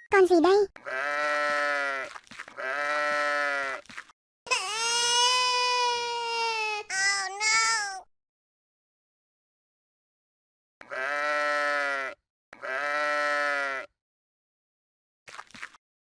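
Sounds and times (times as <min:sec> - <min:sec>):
goat bleating: 0:00.8 - 0:03.8, 0:10.8 - 0:13.9.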